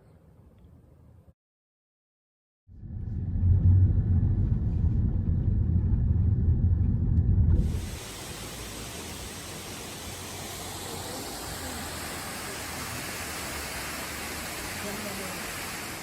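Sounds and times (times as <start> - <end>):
loud low rumble: 2.7 - 8.2
waterfall rushing: 7.6 - 16.0.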